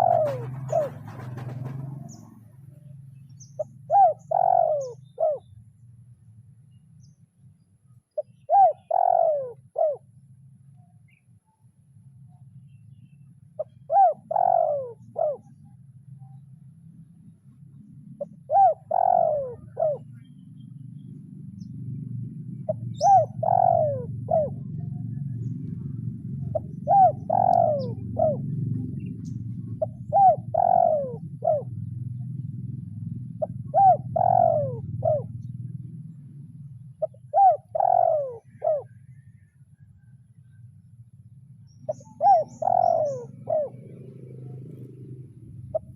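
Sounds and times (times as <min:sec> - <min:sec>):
dove cooing: 0:00.0 - 0:05.6, 0:08.2 - 0:10.3, 0:13.6 - 0:16.4, 0:17.7 - 0:20.5, 0:21.6 - 0:39.4, 0:41.8 - 0:45.9
low steady rumble: 0:00.0 - 0:45.9.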